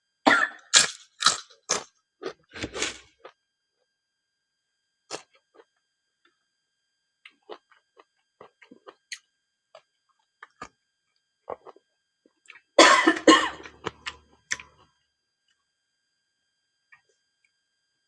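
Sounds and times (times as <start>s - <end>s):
person coughing: 0.3s - 0.6s, 12.8s - 13.8s.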